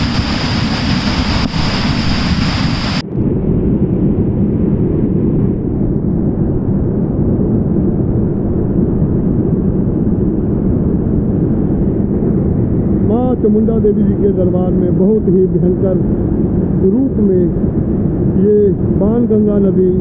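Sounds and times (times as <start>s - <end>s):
river rushing: 0.0s - 3.0s
steady high whine: 0.0s - 3.0s
wind buffeting microphone: 0.0s - 20.0s.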